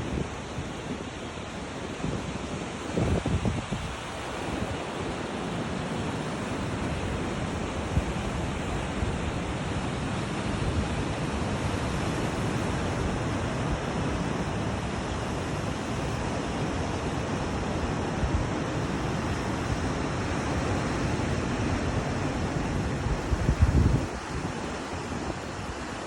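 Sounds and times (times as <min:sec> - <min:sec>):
ocean surf rushing: 0:00.0 - 0:26.0
wind buffeting microphone: 0:02.9 - 0:04.9, 0:17.8 - 0:26.0.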